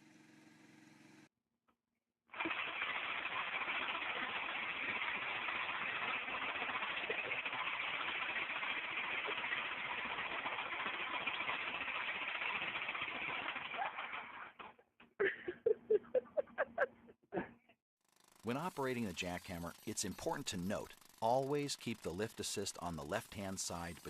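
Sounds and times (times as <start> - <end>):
jackhammer hammering: 18.1 - 23.9.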